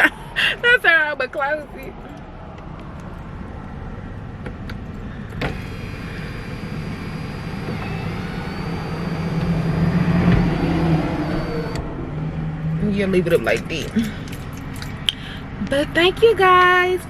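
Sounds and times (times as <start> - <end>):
sunroof motor whirring: 2.9 - 11.9
sunroof click: 4.4 - 11.8.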